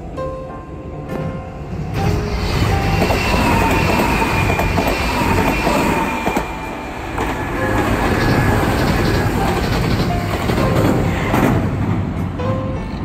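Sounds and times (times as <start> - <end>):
electric train wheels rumbling: 0.8 - 13.0
high-pitched train whine: 1.6 - 13.0
clacks over rail joints: 7.2 - 12.4.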